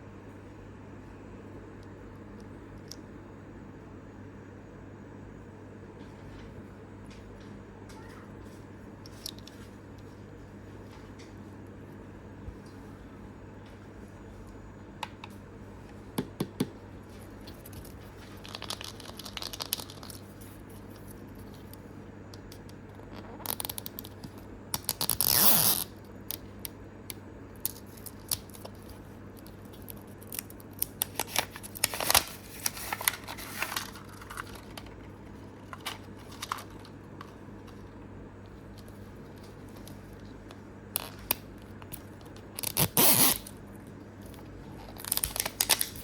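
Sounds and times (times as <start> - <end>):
plastic packaging clicks and rustles: 17.4 - 21.8, 27.6 - 37.9, 44.2 - 46.0.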